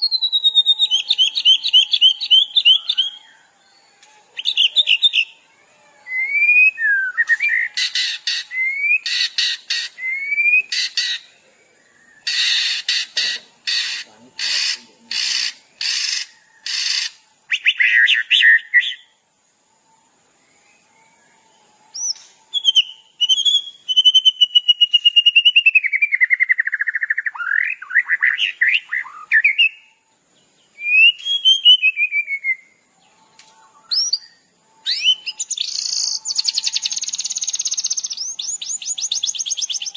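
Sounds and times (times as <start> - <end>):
bird fast trill: 0.0 - 3.3, 6.2 - 11.4, 12.2 - 19.1, 21.9 - 29.9, 33.8 - 39.9
songbird rising whistles: 0.0 - 3.4, 21.9 - 29.9, 33.8 - 39.9
bird harsh rasping notes: 7.3 - 17.2.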